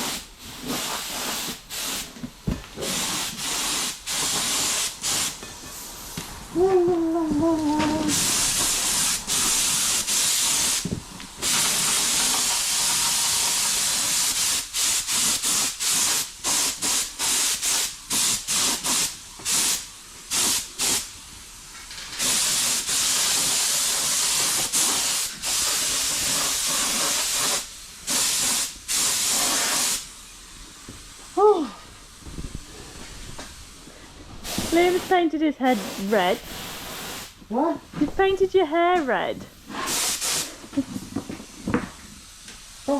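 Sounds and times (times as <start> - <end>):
spray gun spraying in bursts: 0.0 - 2.2, 2.8 - 5.4, 7.9 - 21.2, 22.0 - 30.2, 34.4 - 37.4, 39.7 - 40.6.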